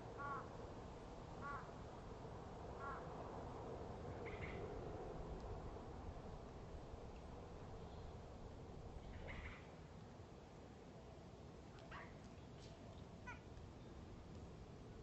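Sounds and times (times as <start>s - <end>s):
crow cawing: 0.2s - 0.5s, 1.4s - 1.7s, 2.8s - 3.1s.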